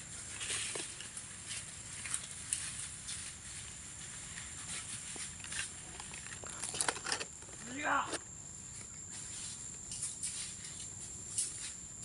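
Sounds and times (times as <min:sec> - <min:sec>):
dry leaves rustling underfoot: 0:00.0 - 0:12.0
steady high hiss: 0:07.2 - 0:12.0.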